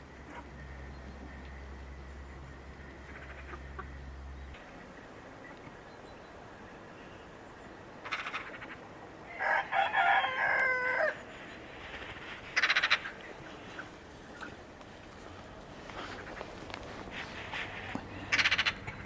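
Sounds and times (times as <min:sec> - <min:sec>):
short raspy calls: 0:03.0 - 0:04.1, 0:08.0 - 0:08.9, 0:11.9 - 0:19.0
rooster crowing: 0:09.3 - 0:11.2.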